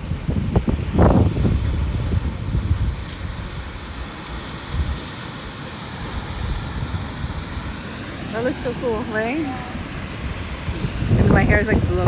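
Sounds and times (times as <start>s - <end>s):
wind buffeting the microphone: 0.0s - 12.0s.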